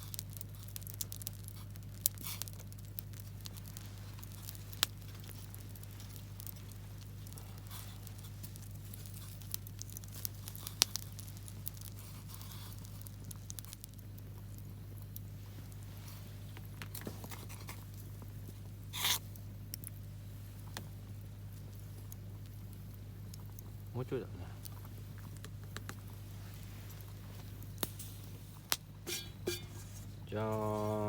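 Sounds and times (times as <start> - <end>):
campfire crackling and popping: 0.0 - 31.0
steady low hum: 0.0 - 31.0.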